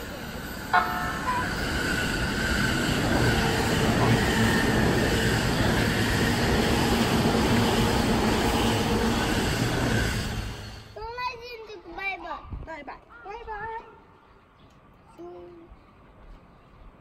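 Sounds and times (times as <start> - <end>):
train wheels rumbling on rails: 0.0 - 11.7.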